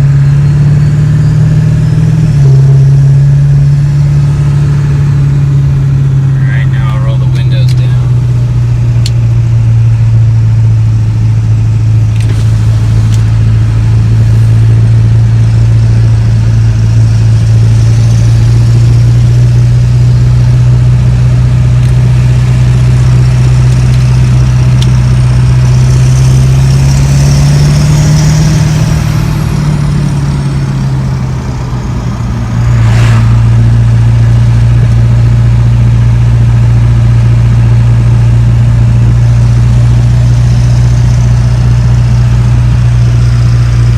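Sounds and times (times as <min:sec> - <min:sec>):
diesel exhaust drone: 0:00.0 - 0:43.9.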